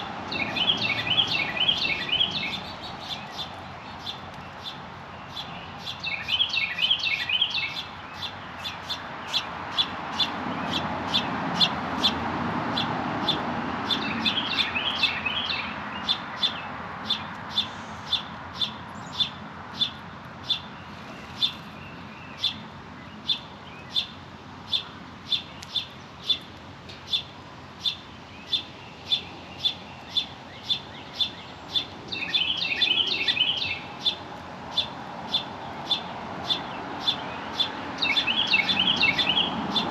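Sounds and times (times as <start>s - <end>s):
birds twittering: 0.0s - 39.9s.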